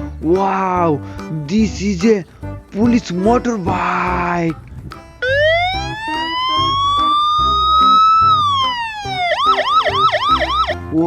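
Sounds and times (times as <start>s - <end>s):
electronic police siren: 5.2s - 10.9s.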